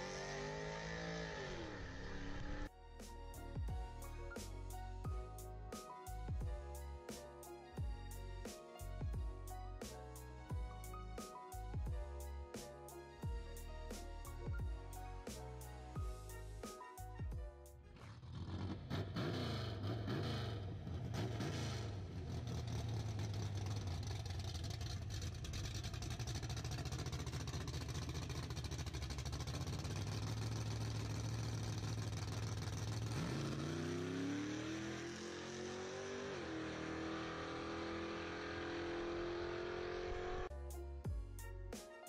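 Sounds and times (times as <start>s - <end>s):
drag car engine revving: 0.0s - 2.7s, 18.0s - 40.5s.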